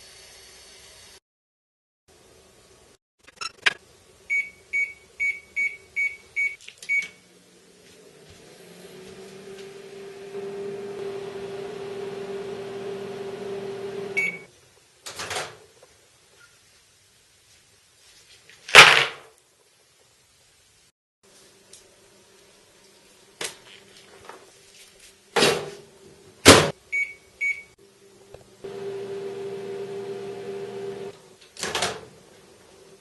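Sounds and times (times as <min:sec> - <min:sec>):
microwave beep: 0:04.3 - 0:07.2, 0:13.7 - 0:14.5, 0:26.9 - 0:27.8
microwave oven humming: 0:08.1 - 0:14.5, 0:27.0 - 0:31.2
microwave keypad beeps: 0:14.2 - 0:14.5, 0:26.9 - 0:27.8.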